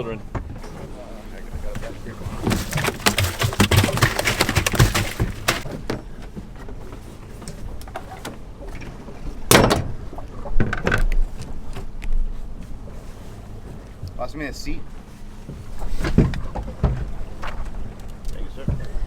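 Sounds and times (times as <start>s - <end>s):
gear knocking and thudding: 1.6s - 5.7s.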